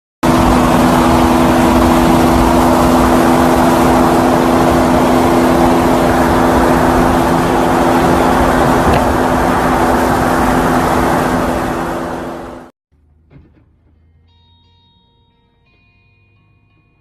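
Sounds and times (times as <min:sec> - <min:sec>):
vehicle noise with two-note drone: 0:00.2 - 0:12.7.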